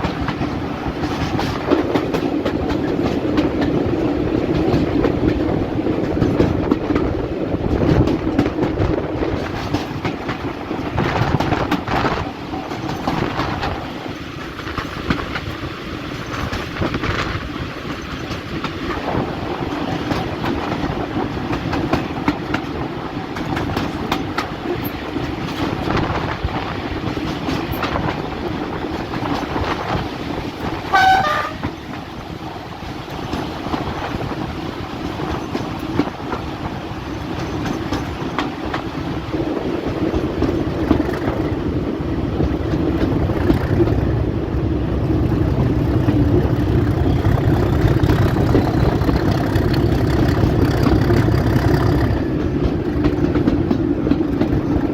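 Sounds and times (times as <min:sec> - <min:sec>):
train wheels clicking over rail joints: 0:00.0 - 0:54.9
diesel train engine droning: 0:30.1 - 0:35.6, 0:41.5 - 0:54.9
train horn toot: 0:30.8 - 0:31.8.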